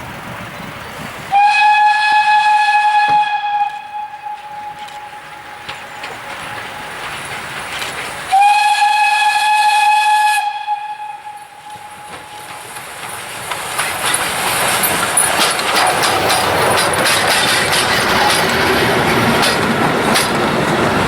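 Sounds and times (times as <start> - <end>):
steam hissing: 0.0 - 21.0
steam locomotive whistle: 1.3 - 6.7, 8.3 - 12.8.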